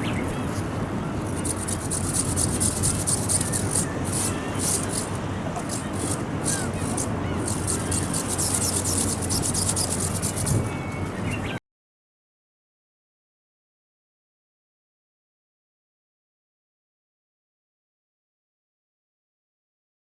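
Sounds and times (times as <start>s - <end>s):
wind buffeting microphone: 0.0s - 11.3s.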